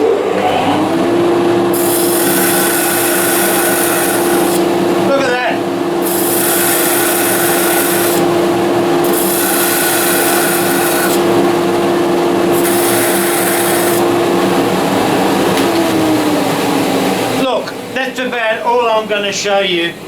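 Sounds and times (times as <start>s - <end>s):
lathe machine hum: 0.0s - 20.0s
tool scraping spinning wood: 1.5s - 15.5s.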